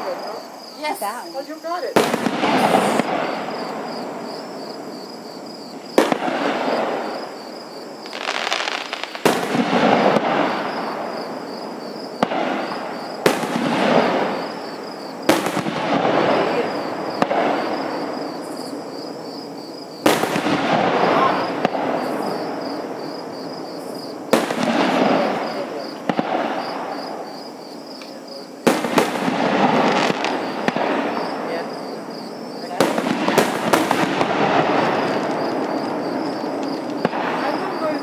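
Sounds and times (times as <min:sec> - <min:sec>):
fireworks bursting: 0:00.0 - 0:38.0
echo of bangs: 0:02.0 - 0:07.7, 0:08.5 - 0:18.4, 0:20.0 - 0:27.5, 0:28.6 - 0:31.8, 0:32.7 - 0:38.0.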